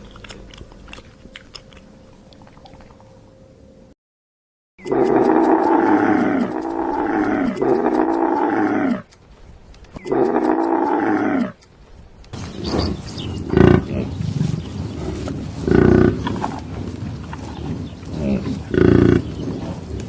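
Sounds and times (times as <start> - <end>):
animal calls: 12.4 - 20.0.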